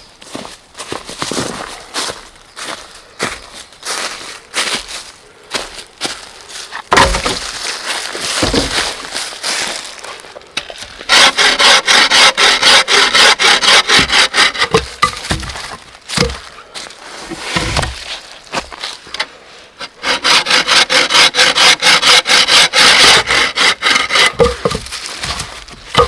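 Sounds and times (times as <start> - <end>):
rubbing and handling of wood: 0.2 - 26.0
hand saw cutting wood: 6.8 - 7.6, 8.2 - 9.6, 10.6 - 16.5, 17.2 - 18.1, 19.2 - 26.0
knocks: 6.9 - 7.6, 8.4 - 8.9, 14.0 - 16.5, 24.2 - 26.0.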